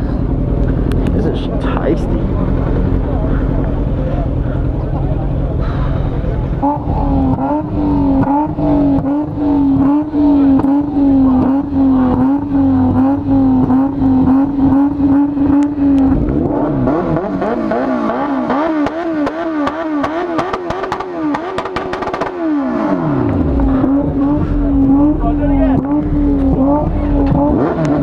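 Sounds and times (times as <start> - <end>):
exhaust pops and crackles: 0.4 - 22.6, 23.2 - 28.0
engine revving: 5.6 - 28.0.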